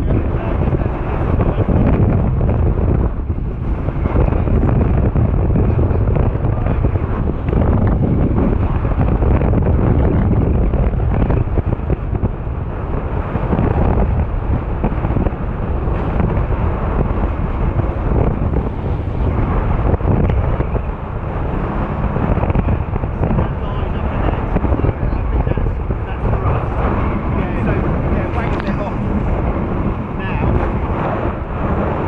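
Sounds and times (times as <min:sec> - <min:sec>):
water rushing past hulls: 0:00.0 - 0:32.0
wind buffeting microphone: 0:00.0 - 0:32.0.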